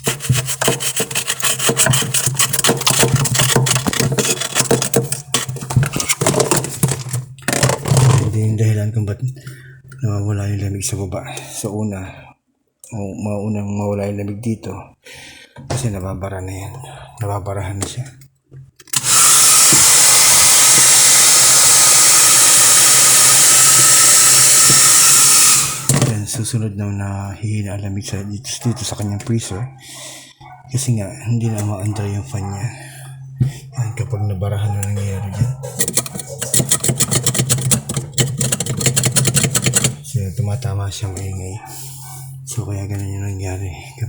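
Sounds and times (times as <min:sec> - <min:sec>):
irregular clicking and rattling: 0:00.0 - 0:08.3, 0:35.4 - 0:40.0
hot-air blower rushing: 0:18.9 - 0:26.2.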